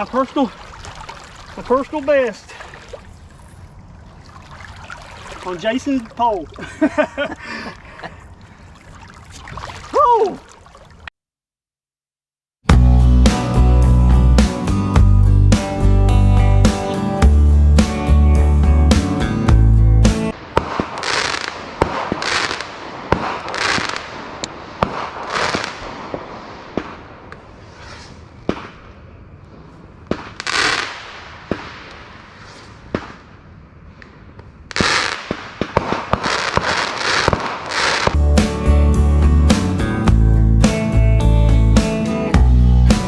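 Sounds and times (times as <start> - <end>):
guitar music: 12.7 - 20.3, 38.2 - 43.0
fireworks bangs and crackling: 20.3 - 38.2.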